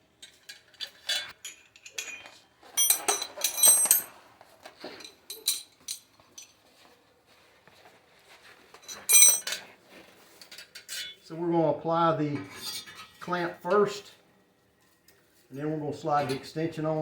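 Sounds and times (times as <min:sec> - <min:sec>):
metal tools clinking and rattling: 0:00.2 - 0:06.8, 0:08.8 - 0:09.7, 0:10.3 - 0:11.2, 0:12.4 - 0:13.4
ringing metallic clinks: 0:01.4 - 0:04.1, 0:08.9 - 0:09.6.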